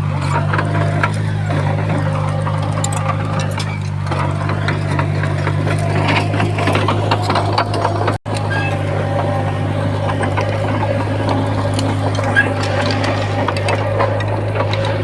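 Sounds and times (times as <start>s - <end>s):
heavy diesel machine running: 0.0s - 15.0s
stone and metal clanks: 10.0s - 15.0s.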